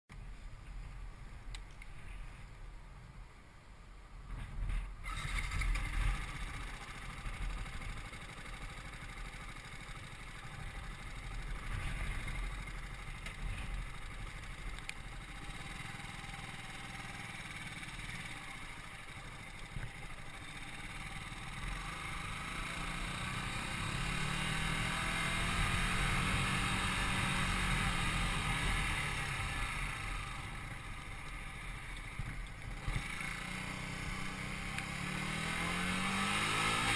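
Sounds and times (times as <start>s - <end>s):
road noise: 0.1s - 36.9s
wind noise: 4.2s - 6.3s
motorcycle engine running: 4.3s - 36.9s.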